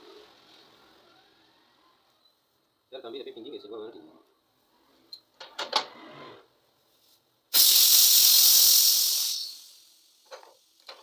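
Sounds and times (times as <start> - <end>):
compressed gas hissing: 7.6 - 10.4.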